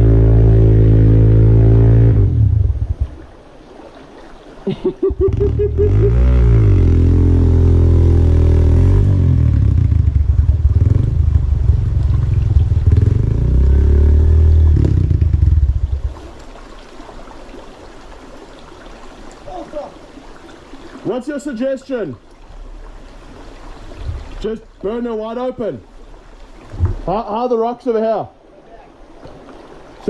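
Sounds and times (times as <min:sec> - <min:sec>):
motorcycle engine revving: 0:00.0 - 0:03.2, 0:05.2 - 0:16.2.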